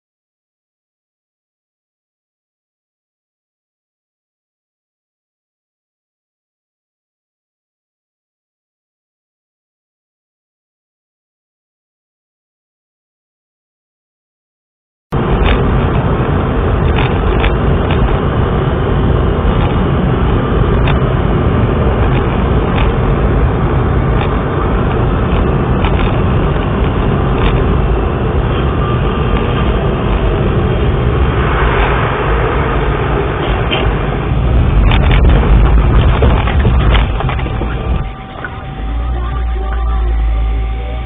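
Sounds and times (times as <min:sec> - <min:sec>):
vehicle engine and road rumble: 0:15.2 - 0:41.0.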